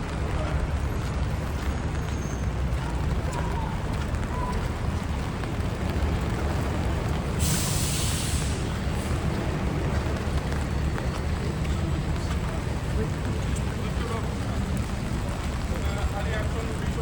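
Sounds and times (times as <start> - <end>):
traffic rumble: 0.0 - 17.0
rain hiss: 0.9 - 17.0
sharp hiss: 7.4 - 8.8.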